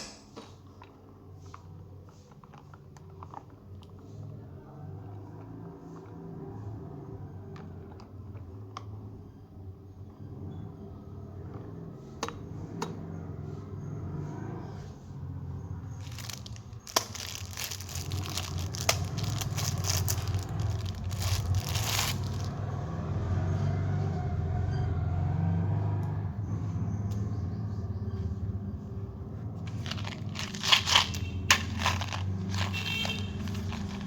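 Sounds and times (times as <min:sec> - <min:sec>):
plastic wrappers crinkling: 0:15.8 - 0:22.5, 0:29.7 - 0:34.0.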